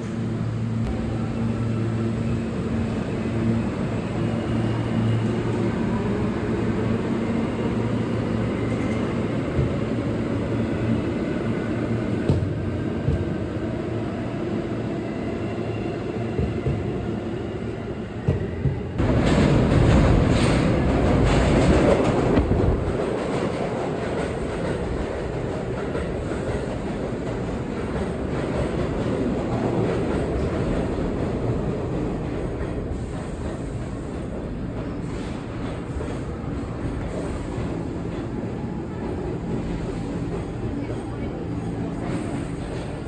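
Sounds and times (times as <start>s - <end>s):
subway train wheels rumbling on rails: 0.0s - 43.0s.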